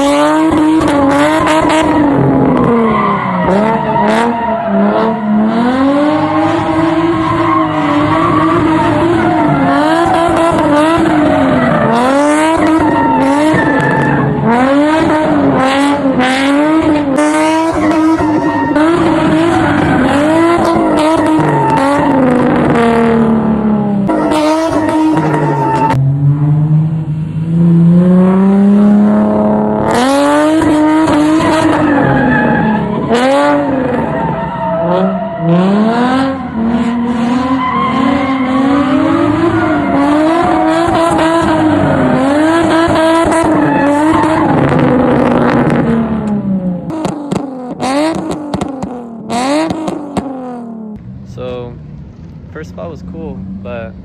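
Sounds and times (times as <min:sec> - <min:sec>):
tyres squealing and skidding: 0:00.0 - 0:26.0, 0:28.6 - 0:46.0
car engine revving hard: 0:00.0 - 0:51.9.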